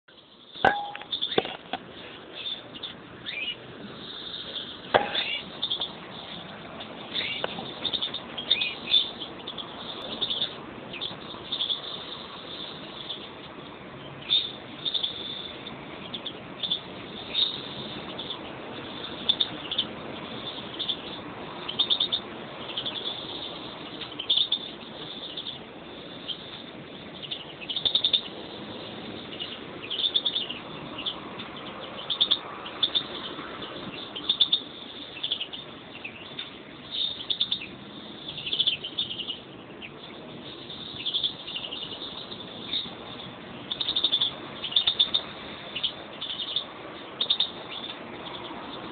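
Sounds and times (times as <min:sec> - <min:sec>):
finches chirping and twittering: 0:00.1 - 0:48.9.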